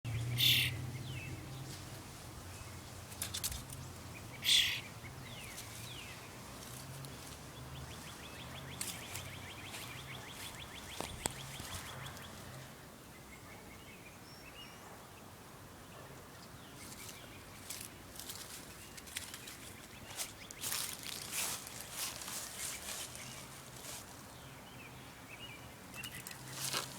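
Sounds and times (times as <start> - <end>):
young bird chirping: 0.1 - 1.4, 3.8 - 6.3, 7.8 - 12.4.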